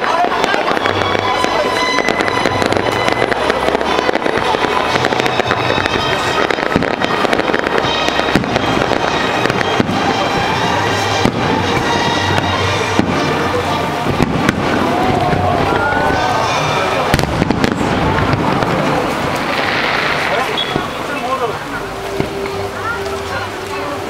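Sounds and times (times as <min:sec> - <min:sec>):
fireworks bangs and crackling: 0:00.0 - 0:24.0
music playing: 0:00.0 - 0:24.0.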